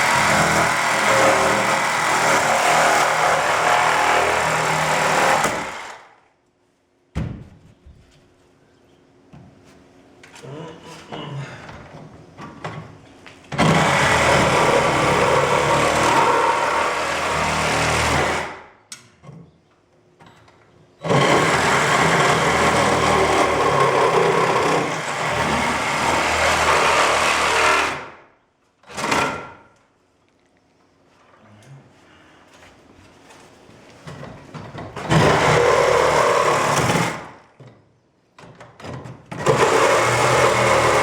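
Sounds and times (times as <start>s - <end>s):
power saw cutting: 0.0s - 6.1s, 13.6s - 18.6s, 21.0s - 28.1s, 35.0s - 37.3s, 39.4s - 41.0s.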